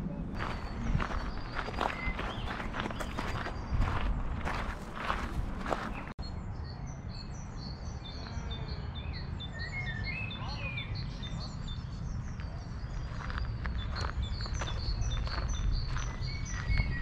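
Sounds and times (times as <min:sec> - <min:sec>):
steady low rumble: 0:00.0 - 0:06.2
songbirds singing: 0:00.3 - 0:17.0.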